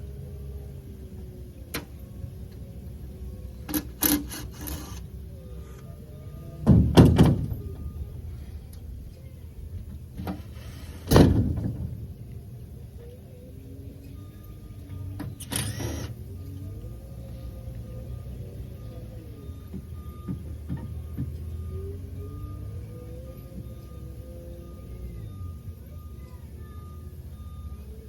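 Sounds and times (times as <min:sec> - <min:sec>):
low steady rumble: 0:00.0 - 0:20.3
heavy booming thuds: 0:06.6 - 0:08.1, 0:09.9 - 0:12.2
light knocks and thuds: 0:19.7 - 0:21.6.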